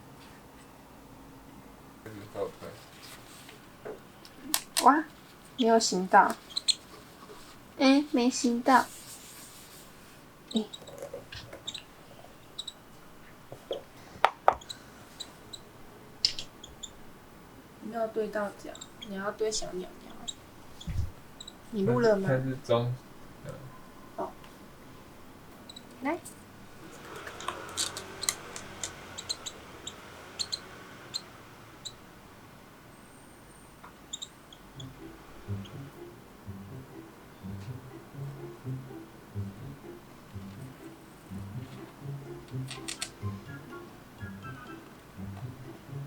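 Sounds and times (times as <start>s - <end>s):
baby parrot peeping: 4.3s - 8.9s, 10.4s - 13.0s, 13.6s - 17.2s, 18.1s - 22.3s, 25.6s - 32.1s, 33.0s - 38.8s, 42.5s - 46.0s
sharp clicks: 27.1s - 29.4s, 42.5s - 43.2s.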